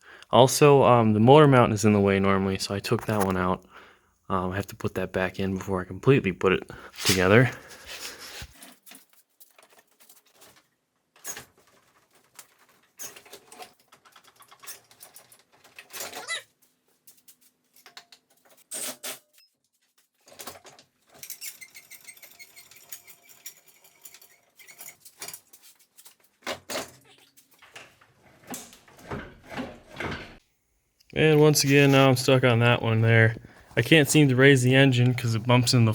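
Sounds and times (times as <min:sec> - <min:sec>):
metal clinking and scraping: 0:06.9 - 0:30.4.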